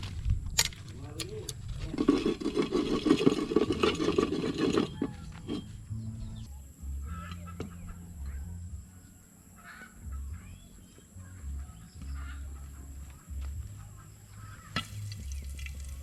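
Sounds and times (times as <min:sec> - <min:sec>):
wind rumble on microphone: 0:00.0 - 0:07.2
chickens clucking: 0:07.0 - 0:15.3.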